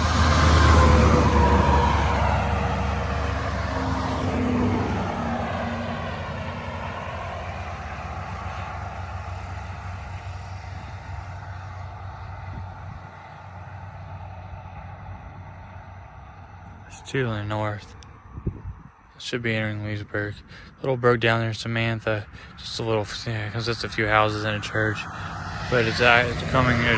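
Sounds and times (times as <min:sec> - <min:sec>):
vehicle passing by whooshing: 0:00.0 - 0:16.8, 0:23.1 - 0:26.9.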